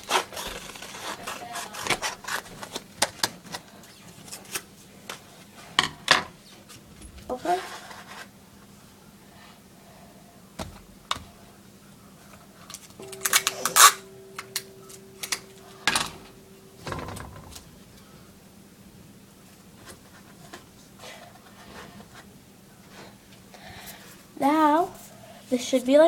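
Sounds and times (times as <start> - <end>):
paper folder crackling: 0.0 - 4.7.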